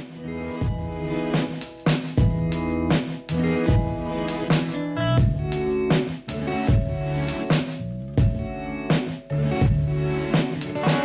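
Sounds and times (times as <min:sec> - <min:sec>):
steady drum beat: 0:00.6 - 0:11.0
sustained instrumental notes: 0:00.7 - 0:11.0.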